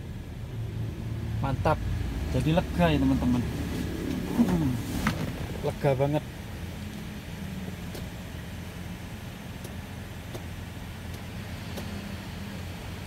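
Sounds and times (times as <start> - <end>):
car engine idling: 0.0 - 13.0
faint light clicks: 11.1 - 12.0.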